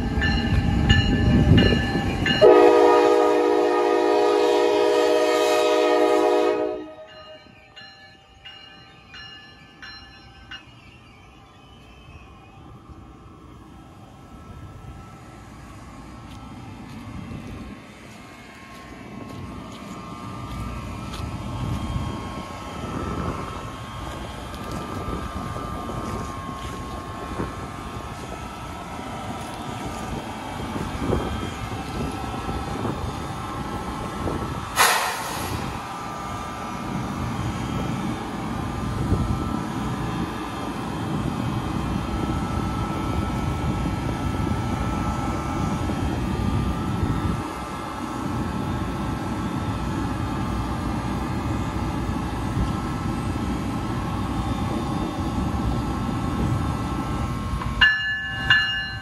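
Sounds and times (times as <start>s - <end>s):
locomotive hum with steady tones: 0.0s - 59.0s
train rumbling over crossing: 0.0s - 59.0s
brief loud hiss: 34.7s - 35.8s.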